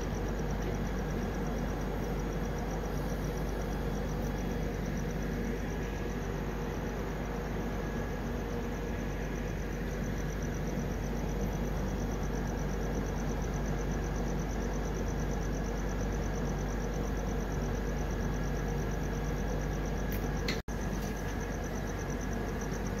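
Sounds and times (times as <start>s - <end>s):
crickets pulsing: 0.0s - 23.0s.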